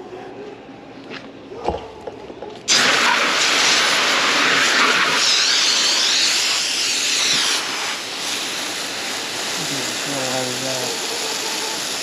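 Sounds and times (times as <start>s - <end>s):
garden hose spraying water: 2.7s - 12.0s.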